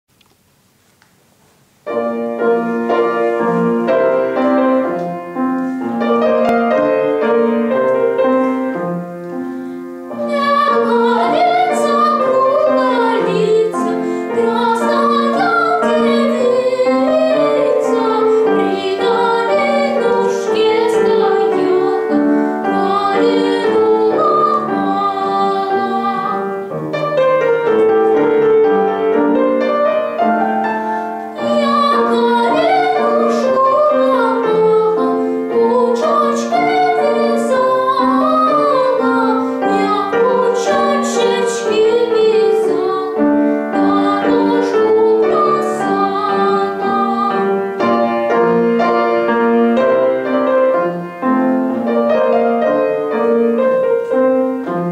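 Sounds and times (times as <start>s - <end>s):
instrumental accompaniment: 1.8s - 54.9s
young woman singing: 10.2s - 26.7s, 31.3s - 47.6s.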